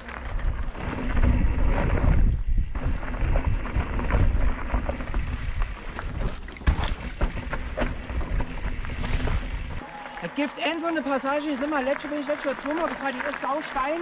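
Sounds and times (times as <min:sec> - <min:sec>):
bike knocks and rattles: 0:00.0 - 0:09.8
wind buffeting microphone: 0:00.3 - 0:05.8.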